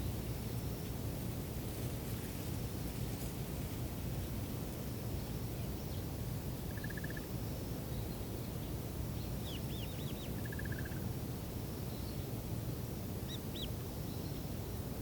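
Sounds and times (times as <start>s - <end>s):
small birds trilling and chirping: 7.9s - 10.9s, 13.3s - 14.5s.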